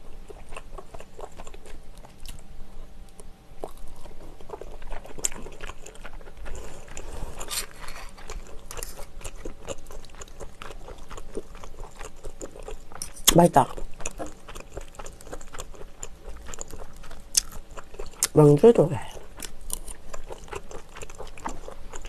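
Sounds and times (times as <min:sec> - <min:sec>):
wet chewing and smacking: 0:00.0 - 0:22.0.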